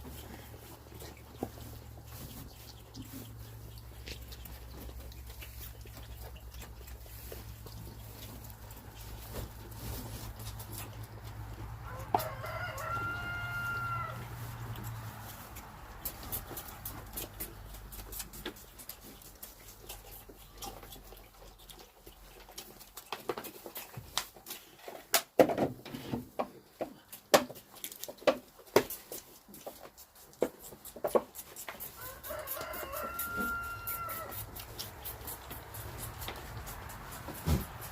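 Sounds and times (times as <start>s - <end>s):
chickens clucking: 0.0s - 24.1s
goats sucking bottles: 0.0s - 25.2s, 26.5s - 37.9s.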